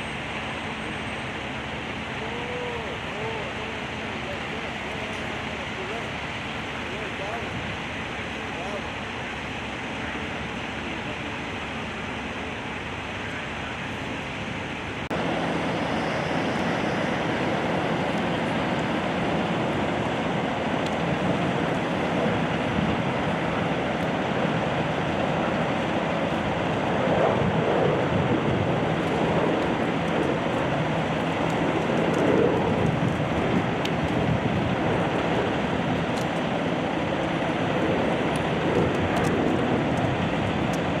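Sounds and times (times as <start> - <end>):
road traffic rushing: 0.0 - 41.0.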